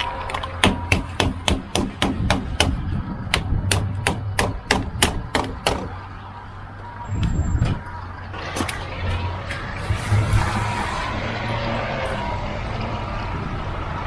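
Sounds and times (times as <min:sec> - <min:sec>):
rapid sharp knocks: 0:00.0 - 0:06.0.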